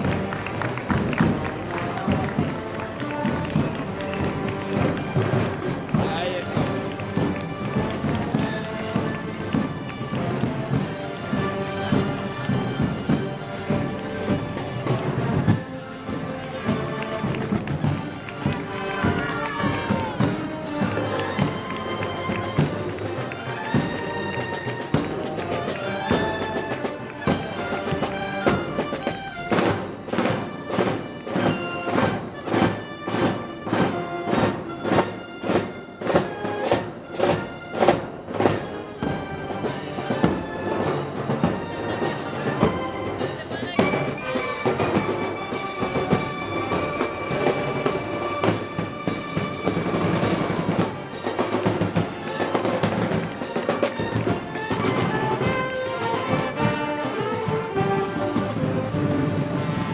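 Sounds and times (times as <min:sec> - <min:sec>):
drum beat: 0:00.0 - 0:59.9
reedy wind instruments melody: 0:00.0 - 0:59.9.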